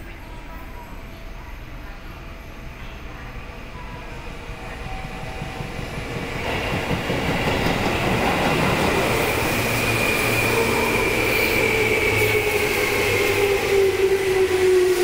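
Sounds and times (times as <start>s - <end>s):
train wheels rumbling on rails: 4.2s - 15.0s.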